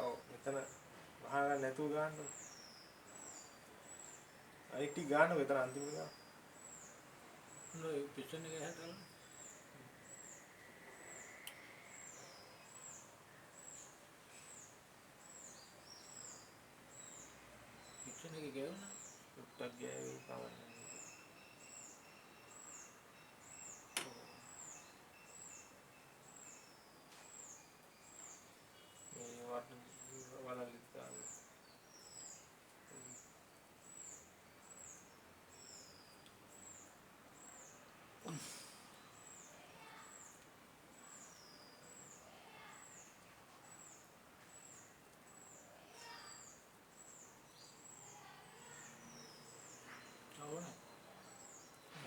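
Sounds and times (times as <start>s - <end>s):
faint high chirps: 7.6s - 14.7s.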